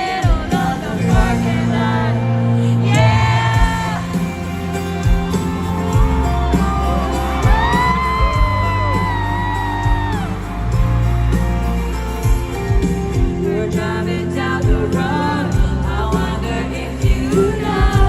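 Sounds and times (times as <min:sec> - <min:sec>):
bass and drum beat: 0:00.0 - 0:02.0, 0:02.9 - 0:18.0
fans whooping: 0:02.9 - 0:13.2.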